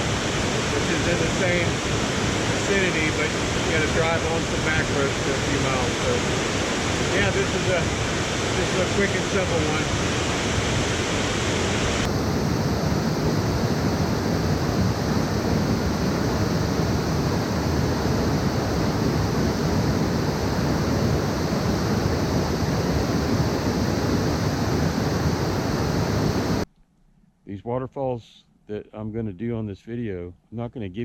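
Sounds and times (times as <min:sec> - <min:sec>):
waterfall rushing: 0:00.0 - 0:12.1.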